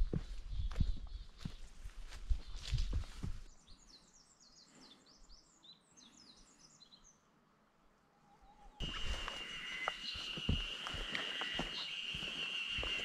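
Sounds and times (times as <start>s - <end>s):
footsteps on forest trail: 0.0s - 3.6s, 8.8s - 13.0s.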